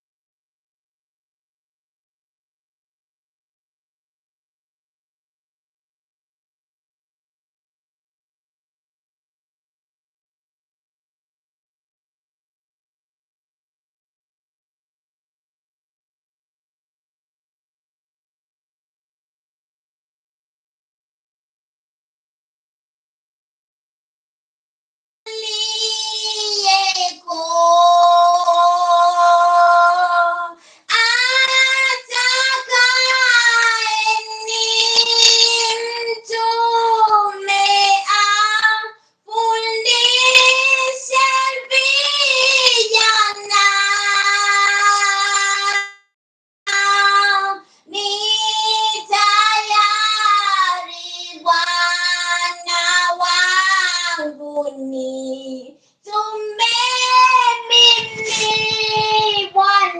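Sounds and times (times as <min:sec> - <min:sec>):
high solo voice singing: 0:25.3 - 0:45.9, 0:46.7 - 0:59.9
person singing long notes: 0:31.1 - 0:37.3, 0:54.4 - 0:59.9.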